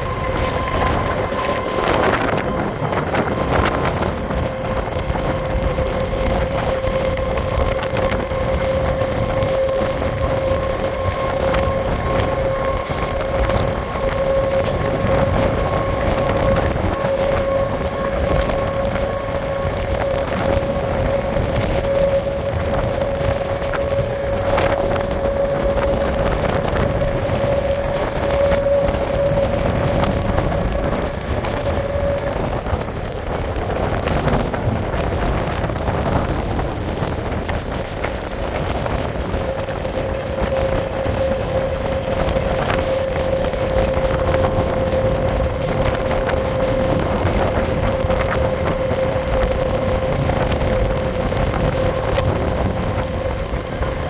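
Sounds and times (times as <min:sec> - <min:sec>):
constant whine: 0:00.0 - 0:54.0
train wheels rumbling on rails: 0:00.0 - 0:54.0
wind on microphone: 0:00.0 - 0:54.0.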